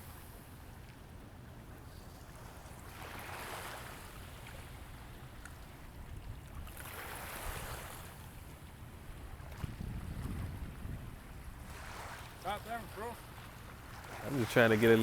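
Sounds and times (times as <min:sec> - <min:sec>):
wind rumble on microphone: 0:04.8 - 0:12.2
river water washing in: 0:09.2 - 0:15.0.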